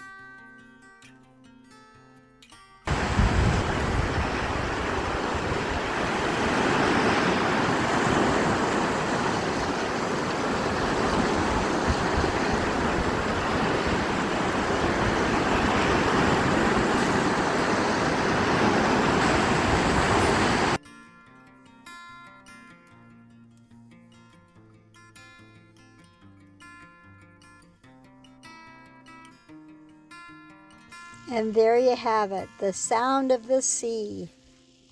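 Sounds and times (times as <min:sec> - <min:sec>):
ocean surf roaring: 0:02.9 - 0:20.8.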